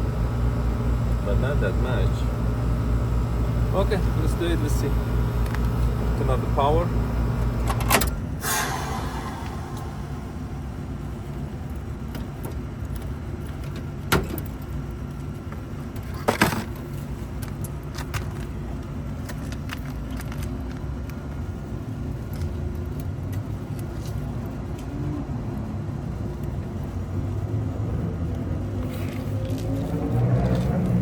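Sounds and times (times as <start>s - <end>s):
air conditioner humming: 0.0s - 14.6s.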